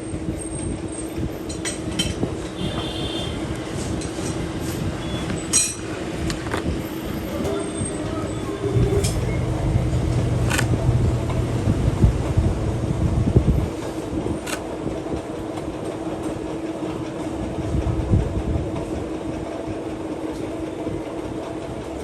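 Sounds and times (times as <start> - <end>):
metal lathe humming: 6.9 - 13.8
heavy low drone: 7.0 - 14.3.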